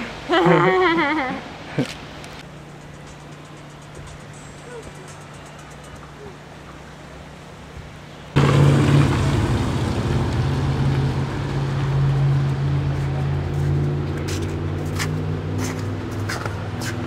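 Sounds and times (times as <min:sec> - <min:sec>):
vehicle engine running: 0:08.4 - 0:17.0.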